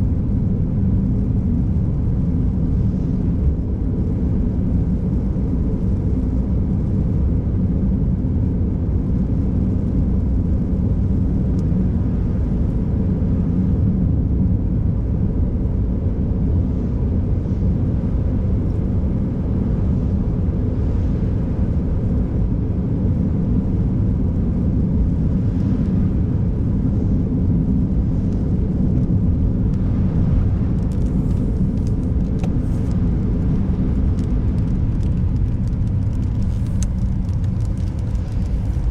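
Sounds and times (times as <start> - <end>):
car driving: 29.6 - 38.9.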